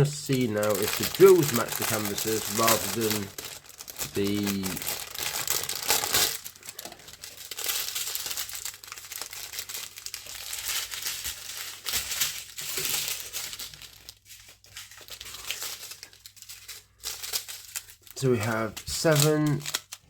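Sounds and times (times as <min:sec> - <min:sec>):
plastic packets crinkling: 0:00.0 - 0:20.0.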